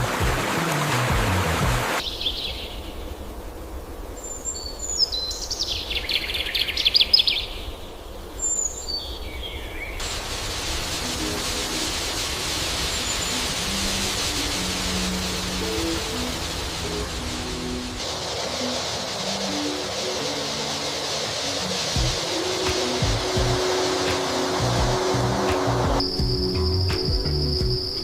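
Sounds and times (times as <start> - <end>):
steady hiss: 0.0 - 28.0
fast dry rattling bird call: 10.0 - 25.2
birds chirping: 11.4 - 28.0.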